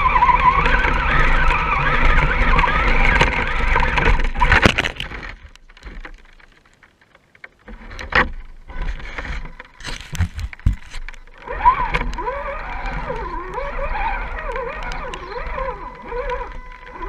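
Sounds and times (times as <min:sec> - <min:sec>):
electric motor and gears whining: 0:00.0 - 0:05.6, 0:07.7 - 0:17.0.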